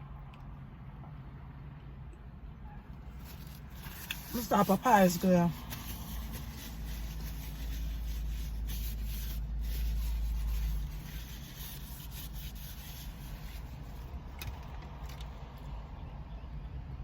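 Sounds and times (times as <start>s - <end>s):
vehicle rumbling: 0.0s - 17.0s
rubbing and rustling near microphone: 3.0s - 15.4s.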